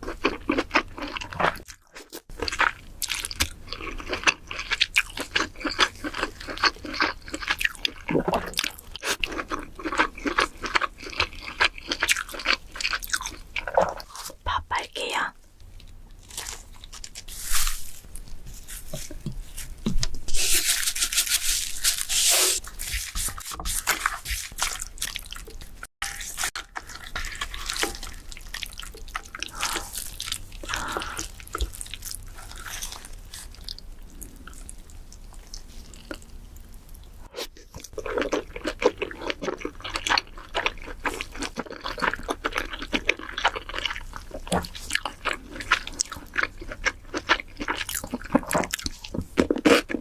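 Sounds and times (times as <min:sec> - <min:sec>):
wet crunchy chewing: 0:15.7 - 0:36.7, 0:37.3 - 0:50.0.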